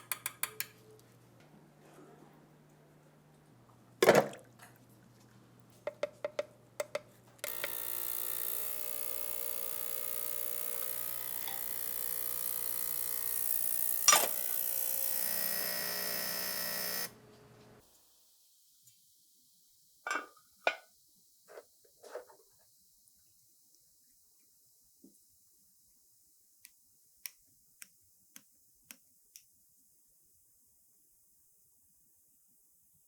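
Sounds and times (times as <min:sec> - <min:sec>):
electric motor tool hissing: 0:07.4 - 0:17.2
sharp metal click: 0:14.1 - 0:14.4.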